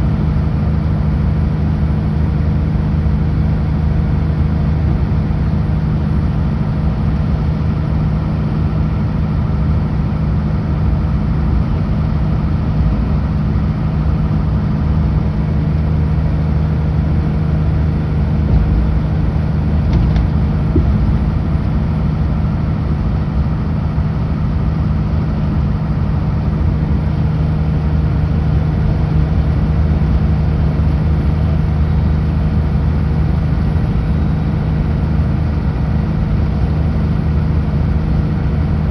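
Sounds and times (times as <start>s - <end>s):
truck diesel engine droning: 0.0s - 38.9s
tyre and road noise: 18.2s - 22.8s.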